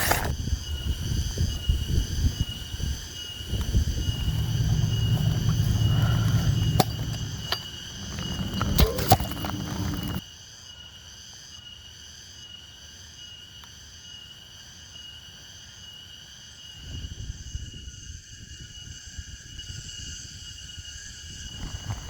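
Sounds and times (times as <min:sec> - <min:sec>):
insects chirping: 0:00.0 - 0:10.2
low rumbling noise: 0:03.4 - 0:10.2.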